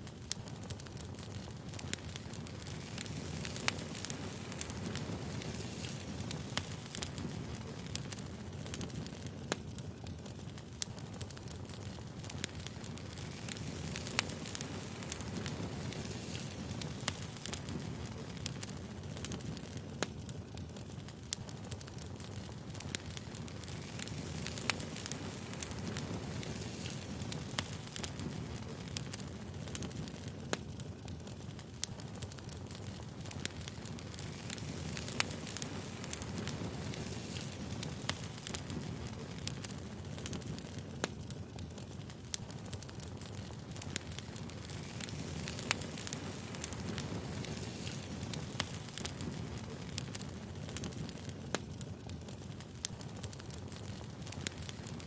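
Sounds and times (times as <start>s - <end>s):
low rumble of burning logs: 0.0s - 55.0s
wood fire crackling: 0.0s - 55.0s.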